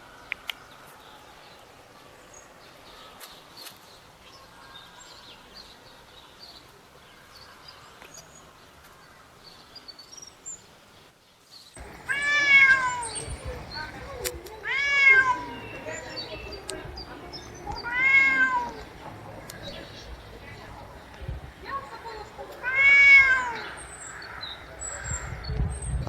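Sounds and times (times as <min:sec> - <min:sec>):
high bird chirps: 0:15.2 - 0:20.4
soft clicks: 0:16.6 - 0:16.8.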